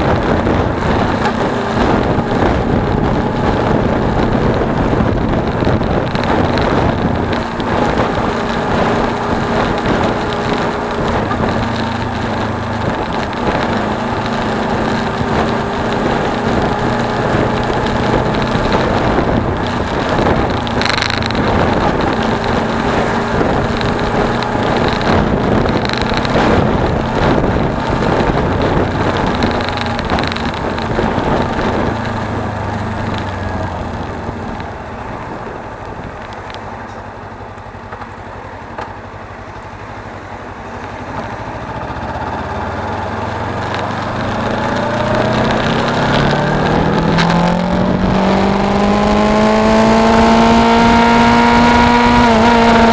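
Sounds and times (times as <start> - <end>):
motorcycle engine running: 0.0 - 52.9
rush of wind and road noise: 0.0 - 52.9.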